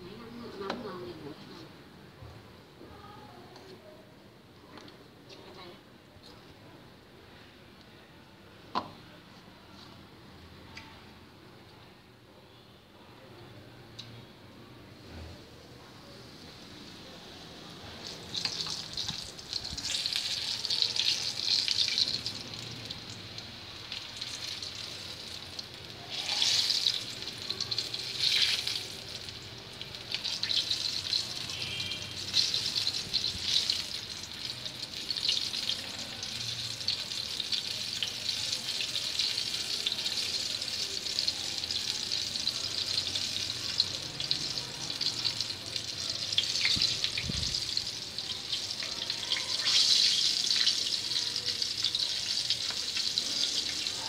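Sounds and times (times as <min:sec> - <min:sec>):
chicken frying in hot oil: 0:16.2 - 0:54.0.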